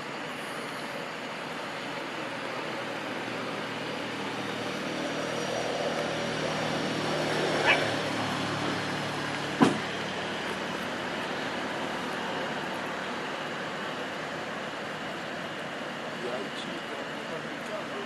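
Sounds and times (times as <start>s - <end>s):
dog barking: 7.6s - 7.9s.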